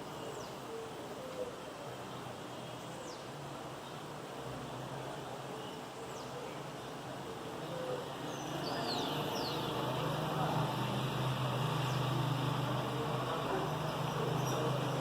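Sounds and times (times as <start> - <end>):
traffic engine hum: 3.3 - 15.0
bird chirps: 8.3 - 9.9.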